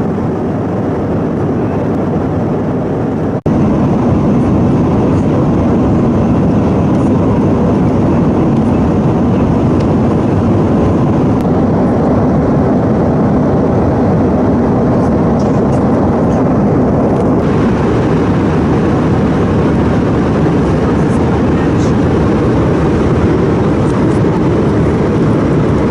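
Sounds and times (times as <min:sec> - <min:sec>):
airliner cabin engine and airflow noise: 0:00.0 - 0:25.9.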